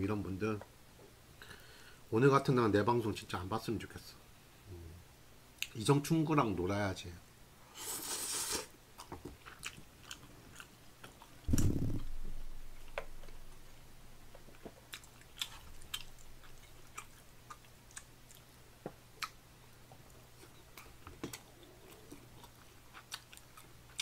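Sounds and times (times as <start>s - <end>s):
person chewing: 7.8s - 12.2s, 14.6s - 18.5s, 19.2s - 19.4s, 20.4s - 24.0s
low thump: 11.5s - 12.5s.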